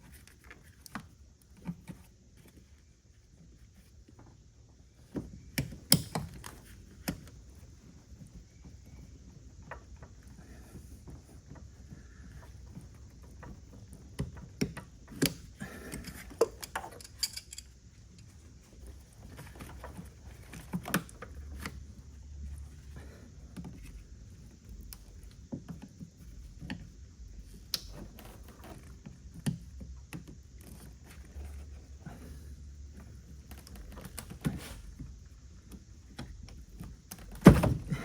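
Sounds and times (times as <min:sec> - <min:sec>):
hand tools clicking and clinking: 0:15.8 - 0:17.7.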